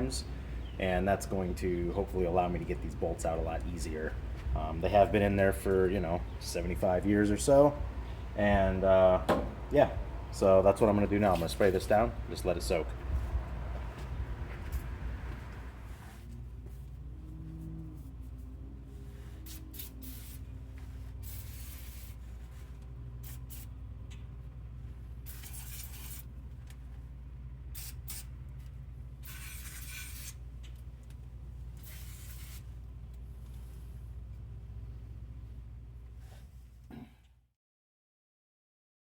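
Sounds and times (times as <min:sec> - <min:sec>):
low steady hum: 0:00.0 - 0:37.5
aerosol spray hissing bursts: 0:19.4 - 0:20.4, 0:21.2 - 0:22.2, 0:31.8 - 0:32.6.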